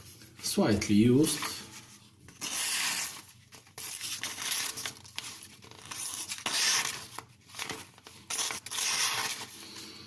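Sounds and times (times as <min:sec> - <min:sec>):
knife slicing through paper: 0:02.3 - 0:09.6.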